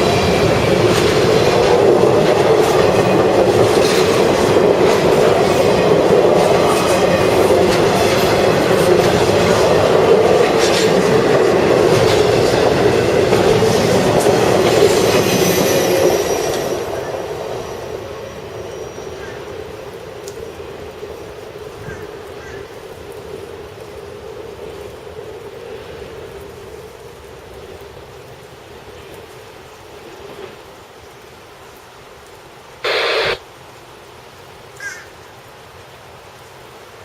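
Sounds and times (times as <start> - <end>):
wheels clicking over rail joints: 0.0 - 17.9
freight train rolling past: 0.0 - 29.4.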